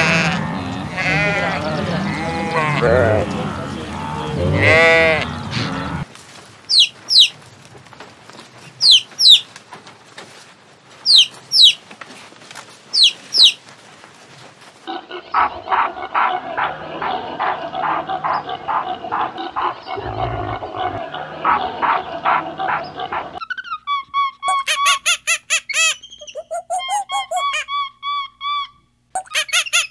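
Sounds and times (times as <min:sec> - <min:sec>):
chicks peeping: 0:06.7 - 0:07.4, 0:08.8 - 0:09.5, 0:11.0 - 0:11.8, 0:12.9 - 0:13.6.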